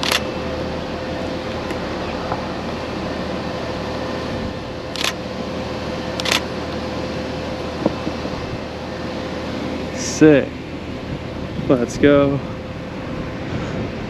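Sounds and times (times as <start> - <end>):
camera shutter clicks: 0.0 - 0.3, 5.0 - 5.2, 6.2 - 6.4.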